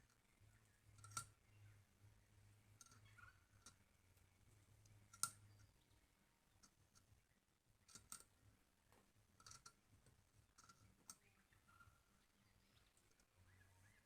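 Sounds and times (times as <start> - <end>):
faint clicks and taps: 7.8 - 11.4.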